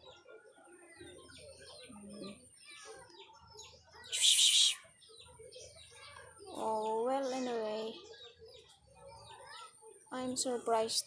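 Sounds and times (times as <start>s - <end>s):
thin steady high tone: 4.1s - 4.8s
birds and poultry calling: 4.1s - 5.7s.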